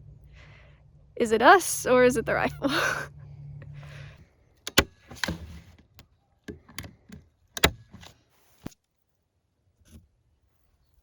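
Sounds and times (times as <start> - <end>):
sharp clicks and knocks: 4.7 - 8.1.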